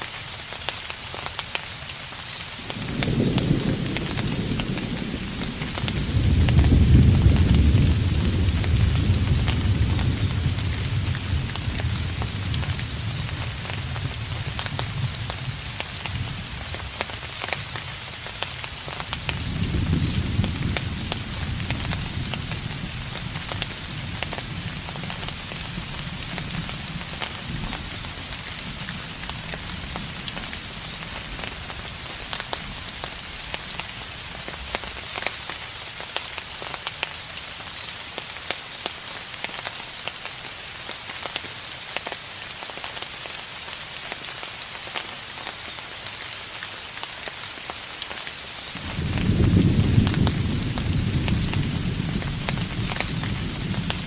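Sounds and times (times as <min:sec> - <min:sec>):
rain falling: 0:00.0 - 0:54.0
raindrops ticking: 0:00.0 - 0:54.0
distant thunder: 0:02.6 - 0:17.2, 0:19.1 - 0:33.3, 0:48.7 - 0:54.0.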